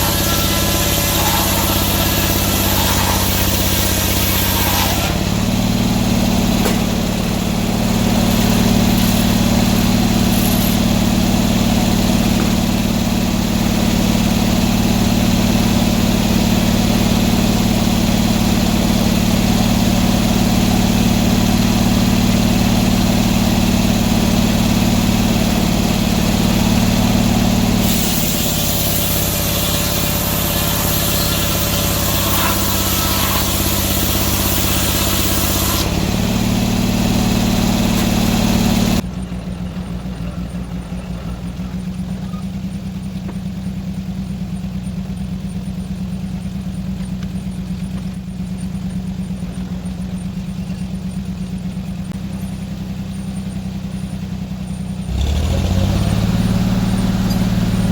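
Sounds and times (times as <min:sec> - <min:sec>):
loud hissing: 0:00.0 - 0:05.2, 0:06.5 - 0:13.1
sawmill engine running: 0:00.0 - 0:57.9.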